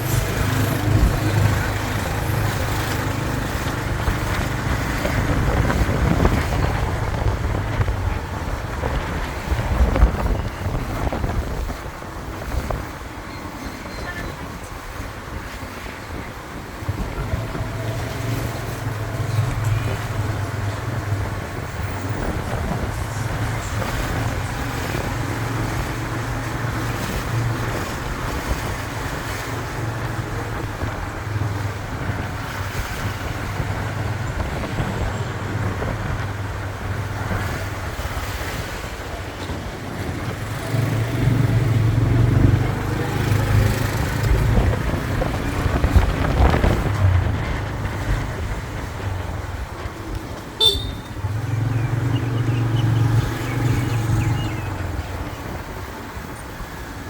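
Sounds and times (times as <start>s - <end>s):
wind buffeting microphone: 0.0s - 57.0s
motorbike engine running: 50.6s - 54.7s.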